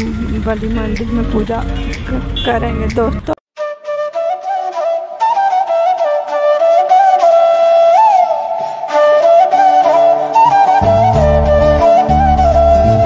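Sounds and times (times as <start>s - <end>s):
solo flute melody: 3.6s - 13.0s.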